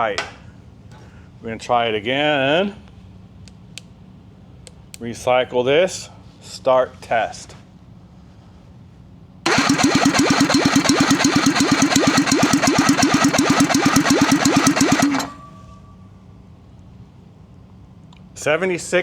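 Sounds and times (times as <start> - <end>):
engine cranked by starter: 9.5 - 15.8.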